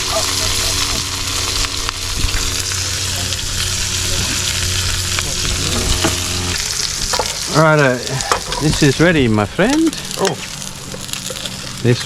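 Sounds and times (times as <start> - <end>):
food sizzling on hot surface: 0.0 - 12.0
low hum: 0.0 - 12.0.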